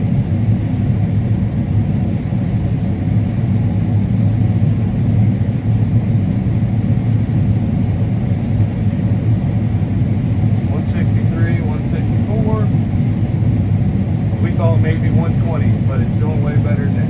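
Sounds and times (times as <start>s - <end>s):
combine harvester rumbling: 6.4s - 17.0s.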